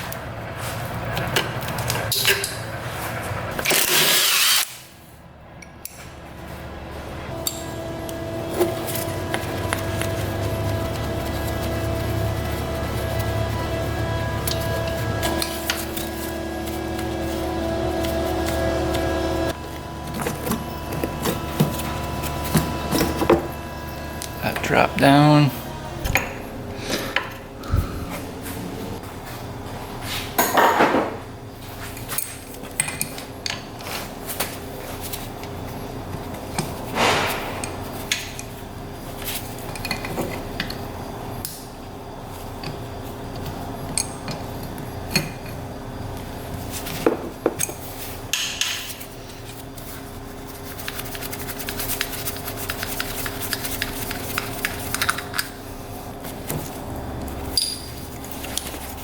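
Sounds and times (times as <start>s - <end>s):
steady background hum: 0.0s - 59.0s
metal tools and parts clanking: 57.4s - 58.8s.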